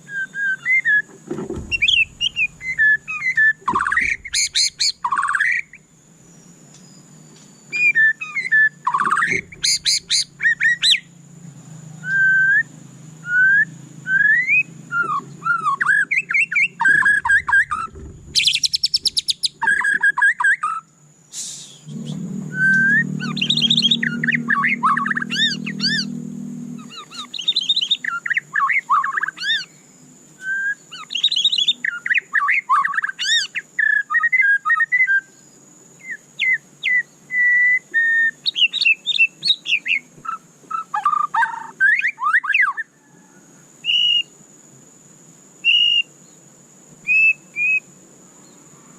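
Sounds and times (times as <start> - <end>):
bird singing whistled notes: 0.0 - 44.4, 45.6 - 46.4, 47.0 - 48.6
bird rattling trill: 1.4 - 5.8, 7.8 - 11.1, 14.4 - 20.8, 21.9 - 26.2.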